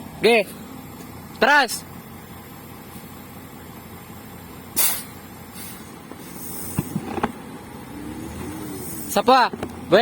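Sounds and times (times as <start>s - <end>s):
truck engine running: 0.0s - 10.0s
sharp air hiss: 4.8s - 6.9s.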